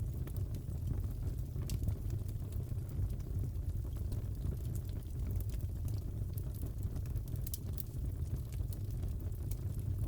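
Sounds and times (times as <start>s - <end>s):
fire rumbling: 0.0s - 10.0s
burning wood snapping and popping: 1.6s - 2.4s, 3.9s - 9.6s.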